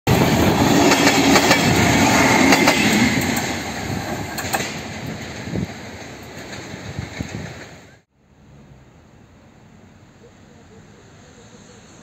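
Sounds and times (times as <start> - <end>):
train wheels clacking and rumbling: 0.1 - 8.0.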